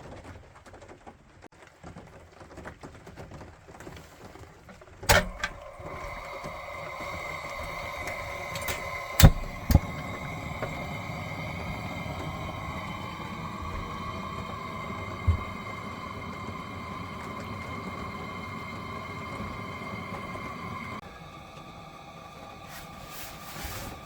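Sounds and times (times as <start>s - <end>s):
propane appliance hissing: 5.1s - 24.0s.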